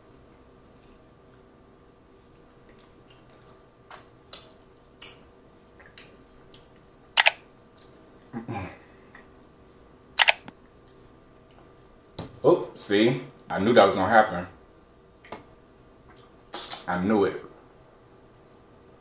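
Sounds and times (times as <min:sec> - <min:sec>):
sharp mouth clicks: 0:16.1 - 0:16.9.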